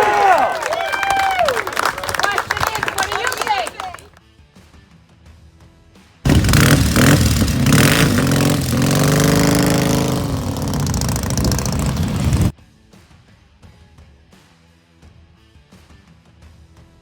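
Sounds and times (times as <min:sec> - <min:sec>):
motorcycle engine revving: 0:06.3 - 0:12.5.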